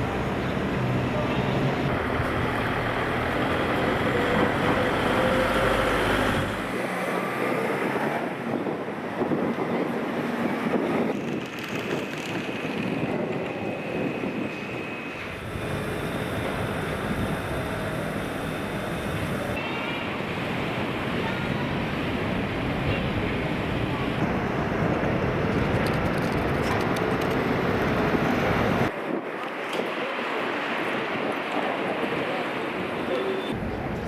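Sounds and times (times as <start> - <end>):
street traffic: 0.0 - 34.0
wind blowing over microphone: 7.6 - 19.6, 20.2 - 34.0.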